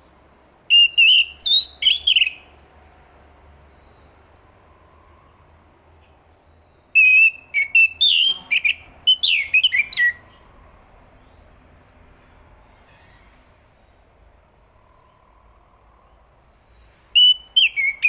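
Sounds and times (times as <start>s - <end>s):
thrush singing whistled notes: 0.7s - 2.6s, 6.5s - 10.5s, 16.7s - 18.0s.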